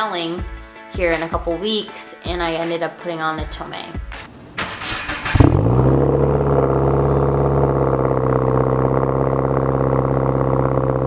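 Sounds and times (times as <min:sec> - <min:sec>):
car engine starting and idling: 0:04.3 - 0:11.0.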